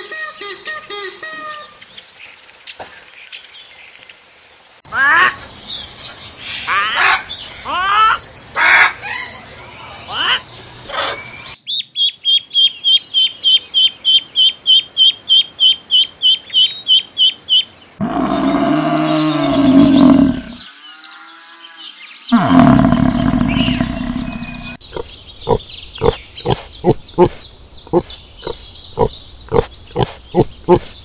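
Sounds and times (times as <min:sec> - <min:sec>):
ducklings peeping: 0:11.7 - 0:17.7, 0:24.2 - 0:31.0
buffalo lowing: 0:18.0 - 0:20.6, 0:22.3 - 0:31.0
pig grunting: 0:18.0 - 0:20.6, 0:22.3 - 0:31.0.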